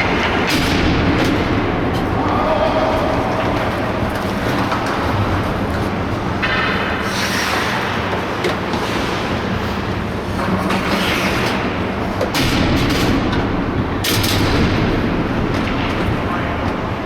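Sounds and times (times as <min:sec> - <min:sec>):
skate blades scraping ice: 0:03.6 - 0:11.8.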